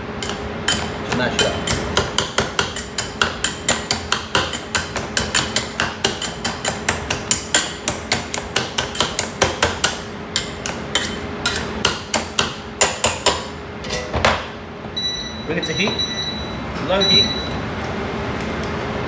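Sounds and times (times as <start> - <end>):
potato masher knocking in pot: 0.2 - 15.0.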